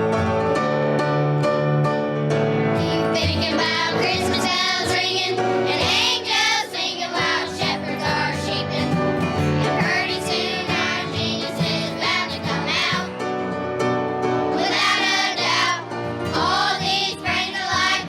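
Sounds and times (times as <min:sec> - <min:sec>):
instrumental accompaniment: 0:00.0 - 0:18.0
children's choir singing: 0:02.8 - 0:13.2, 0:14.4 - 0:18.0.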